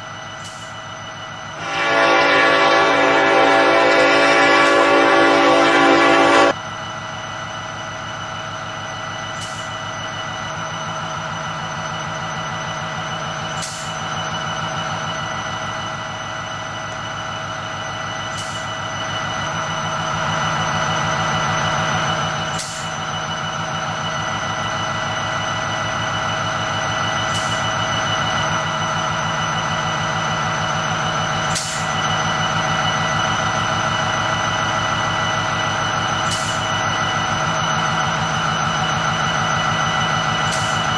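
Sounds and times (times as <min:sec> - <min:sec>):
train rumbling past: 0:01.2 - 0:08.2.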